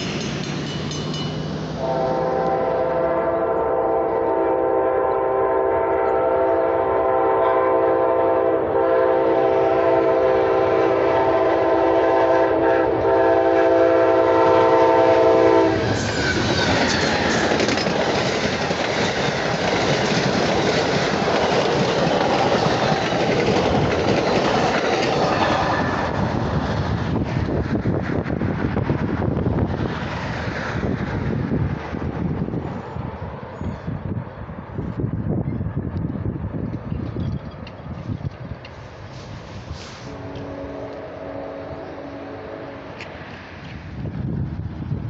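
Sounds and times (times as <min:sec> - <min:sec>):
train wheels clattering on rails: 0:00.0 - 0:01.8, 0:15.7 - 0:28.9, 0:36.6 - 0:38.8
locomotive horn: 0:01.8 - 0:16.0, 0:39.8 - 0:43.2.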